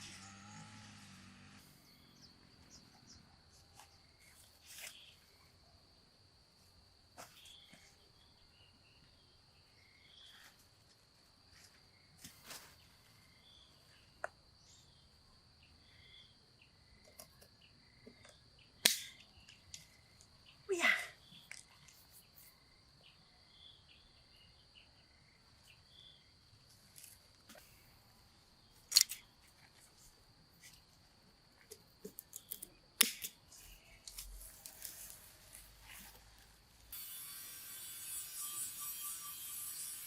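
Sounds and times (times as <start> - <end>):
high-pitched insect drone: 36.9 - 40.0.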